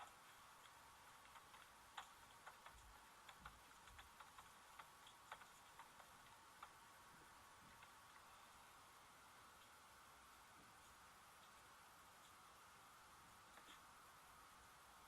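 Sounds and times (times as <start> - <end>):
faint irregular clicks and taps: 0.0 - 8.6, 10.7 - 12.5, 13.4 - 13.9
faint hiss: 0.0 - 15.0.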